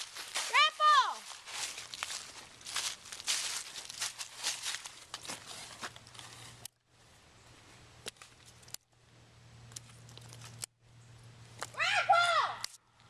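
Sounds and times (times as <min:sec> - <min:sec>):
footsteps: 0:00.0 - 0:06.7
rustling: 0:01.2 - 0:06.7.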